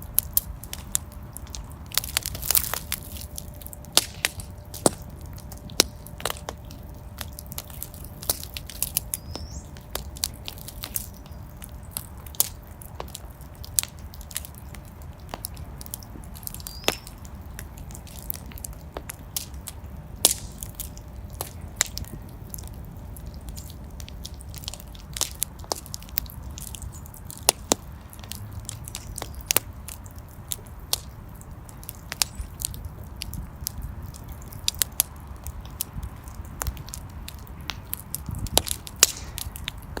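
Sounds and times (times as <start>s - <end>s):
fire crackling and popping: 0.0s - 40.0s
low rumble of flame: 0.0s - 40.0s.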